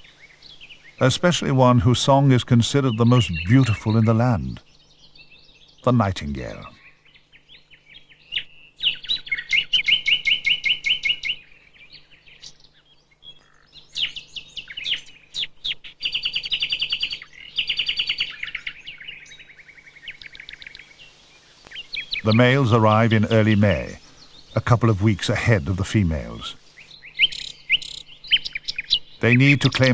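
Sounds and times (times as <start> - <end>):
nightingale singing: 0.0 - 29.9.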